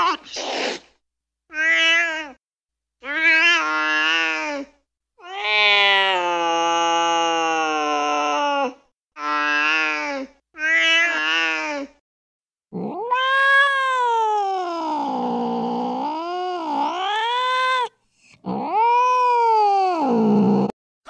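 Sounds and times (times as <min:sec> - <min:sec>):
cat yowling: 0:01.5 - 0:02.4, 0:05.2 - 0:09.9, 0:10.6 - 0:11.9, 0:12.8 - 0:17.9, 0:18.5 - 0:20.7.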